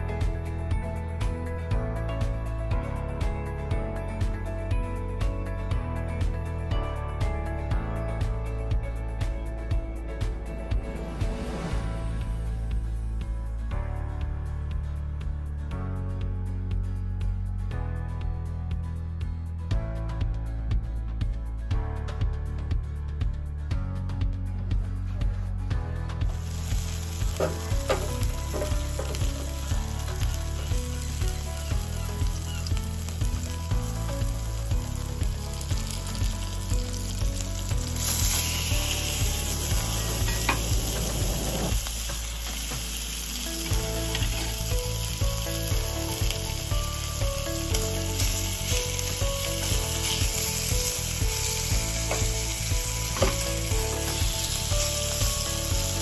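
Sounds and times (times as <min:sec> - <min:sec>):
meat sizzling in hot oil: 0:26.2 - 0:56.0.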